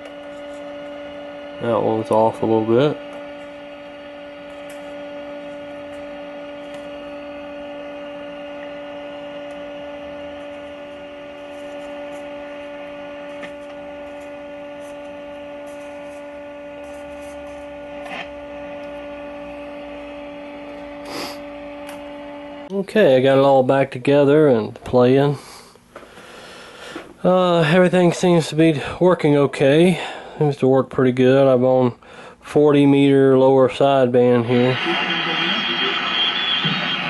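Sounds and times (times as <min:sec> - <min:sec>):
low hum: 0:00.0 - 0:22.7, 0:34.2 - 0:37.0
steady tone from radio speaker: 0:00.0 - 0:23.3, 0:33.4 - 0:37.0.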